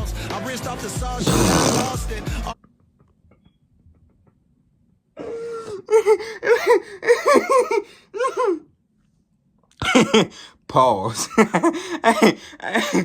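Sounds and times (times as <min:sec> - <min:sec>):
man laughing: 0:05.6 - 0:08.6, 0:09.8 - 0:10.4, 0:11.1 - 0:13.0.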